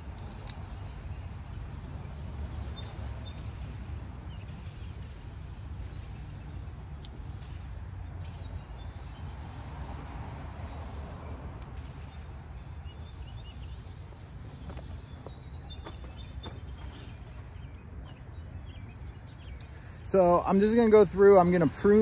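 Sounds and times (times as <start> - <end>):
small bird chirping: 12.6 - 20.0.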